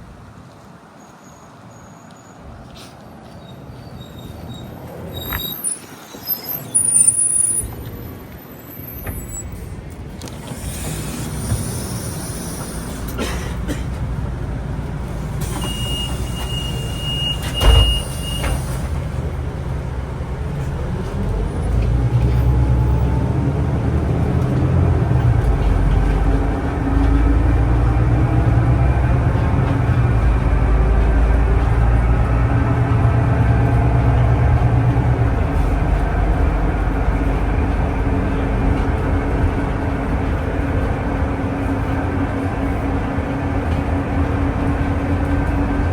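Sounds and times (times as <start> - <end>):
bus engine rumble: 0.0 - 45.9
thud: 17.5 - 18.7.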